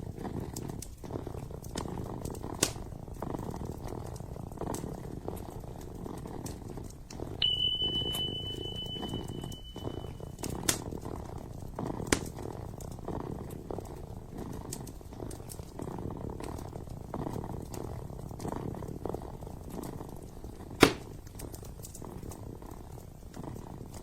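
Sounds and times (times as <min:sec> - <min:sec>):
kitten purring: 0:00.0 - 0:24.0
wood fire crackling: 0:00.0 - 0:24.0
high-pitched beep: 0:07.4 - 0:10.1.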